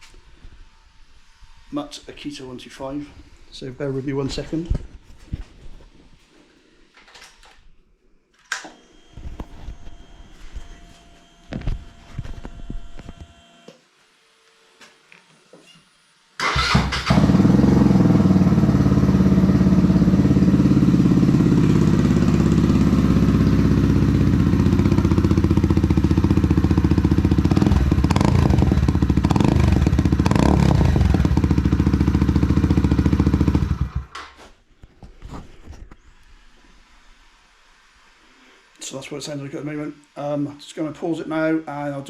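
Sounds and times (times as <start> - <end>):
motorcycle engine idling: 16.5 - 34.1.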